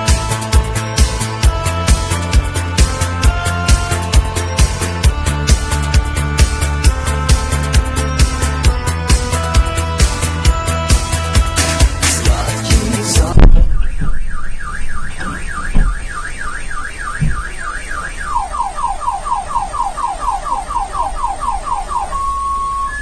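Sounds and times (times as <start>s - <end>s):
car alarm: 0.0s - 23.0s
electronic music: 0.0s - 23.0s
loud thump: 13.2s - 17.8s.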